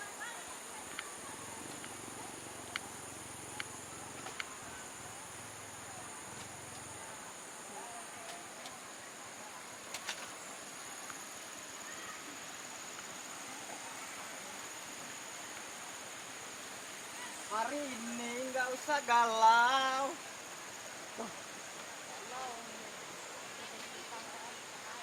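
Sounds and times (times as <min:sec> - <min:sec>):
constant hiss: 0:00.0 - 0:25.0
high-pitched insect chorus: 0:00.0 - 0:25.0.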